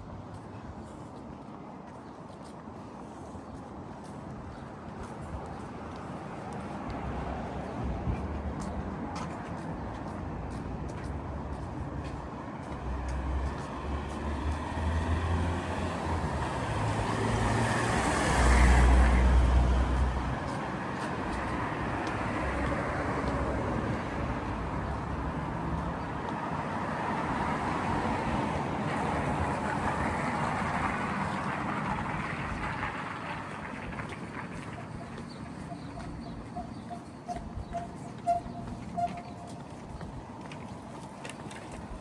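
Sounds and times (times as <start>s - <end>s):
deep traffic rumble: 0.0s - 42.0s
vehicle passing close: 13.8s - 26.1s.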